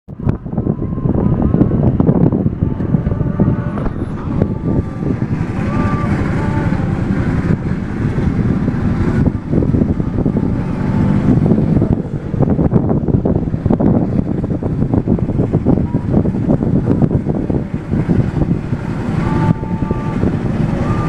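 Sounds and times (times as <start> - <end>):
wind buffeting microphone: 0.1 - 21.0
faint higher tone: 0.7 - 1.8, 2.6 - 7.7, 18.8 - 21.0
steam engine rumbling: 1.8 - 21.0.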